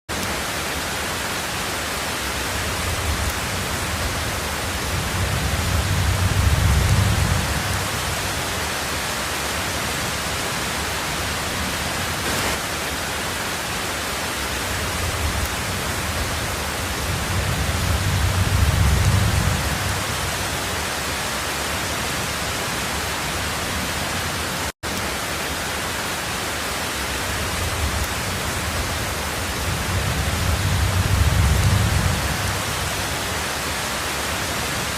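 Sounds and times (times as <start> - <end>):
heavy rain on a tin roof: 0.1 - 34.9
low rumbles of thunder: 2.5 - 8.6, 14.7 - 20.6, 27.4 - 33.2.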